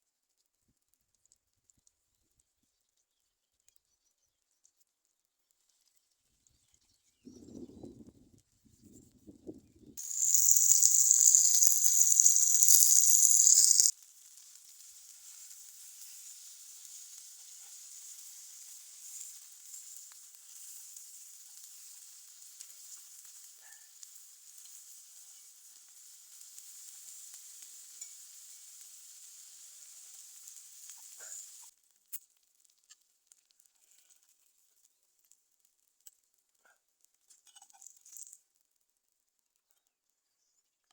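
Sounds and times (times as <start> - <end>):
food sizzling in a hot pan: 10.0 - 31.7.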